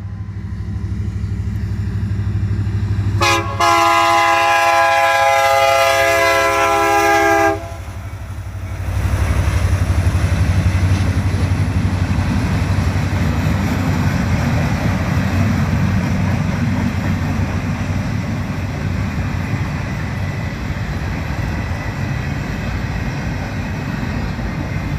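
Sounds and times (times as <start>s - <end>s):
train rumbling on rails: 0.0s - 24.9s
train air horn chord: 3.2s - 8.0s.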